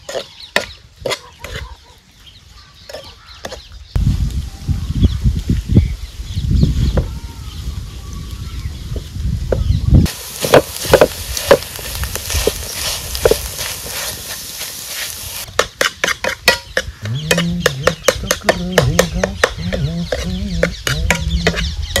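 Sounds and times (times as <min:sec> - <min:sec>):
food sizzling in hot oil: 0:10.0 - 0:15.5.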